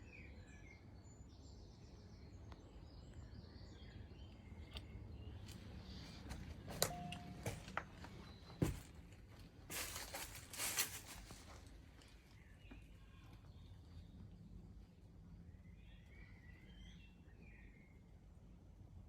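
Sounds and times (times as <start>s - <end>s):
rustling footsteps: 5.4s - 12.9s.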